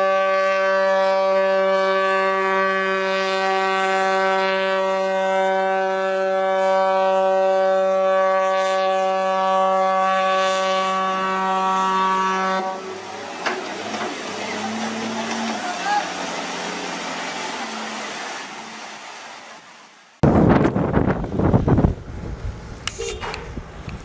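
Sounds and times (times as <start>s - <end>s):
ship's horn blast: 0.0s - 19.0s.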